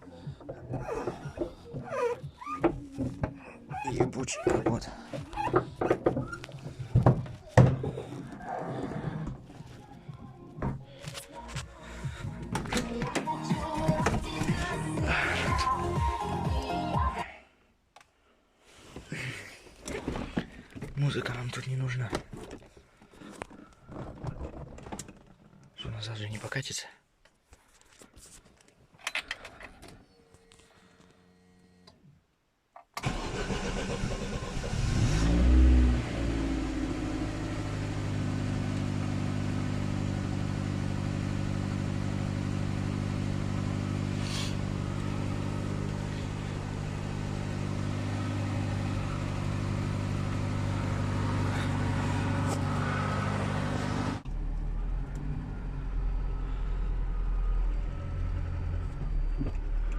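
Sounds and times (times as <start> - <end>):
car engine starting and idling: 0.0 - 17.2, 33.0 - 59.9.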